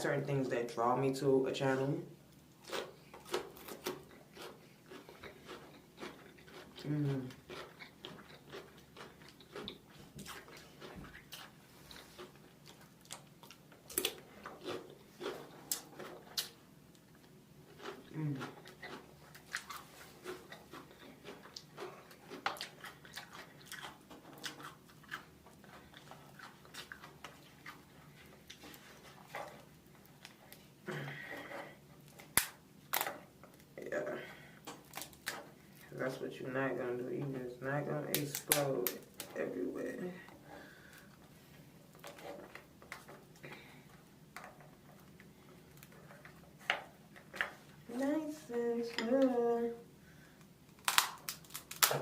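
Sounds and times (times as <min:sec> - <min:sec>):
chewing and mouth smacking: 0:02.6 - 0:30.6
crab shell clicks and crackles: 0:32.1 - 0:33.7, 0:50.4 - 0:52.0.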